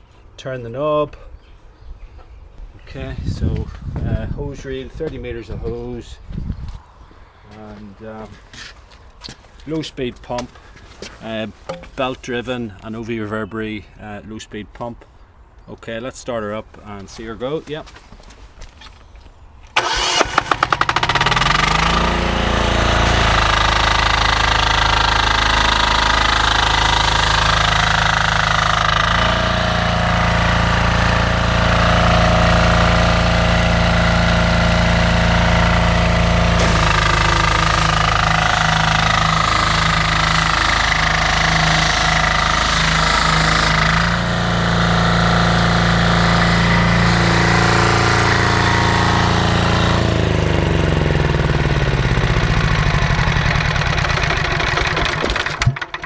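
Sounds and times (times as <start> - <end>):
diesel engine cranking and running: 19.7 - 56.0.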